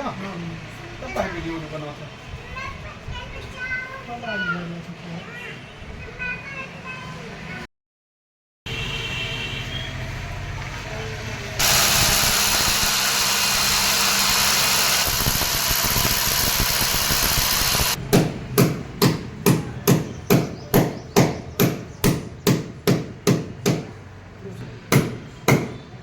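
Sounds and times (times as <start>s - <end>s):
power tool running: 11.6s - 18.0s
hammer strikes: 17.0s - 24.0s, 24.9s - 25.8s.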